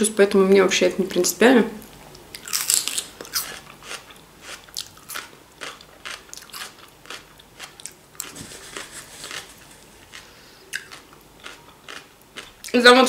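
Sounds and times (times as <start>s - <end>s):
person chewing crunchy vegetable: 2.3s - 12.8s.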